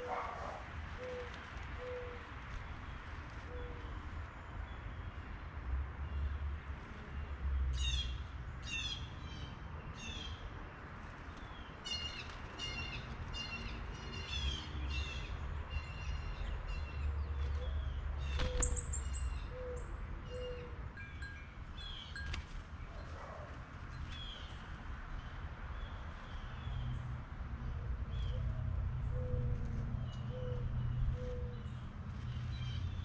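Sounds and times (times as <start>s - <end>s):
small birds chirping: 11.2s - 27.2s, 27.9s - 33.0s.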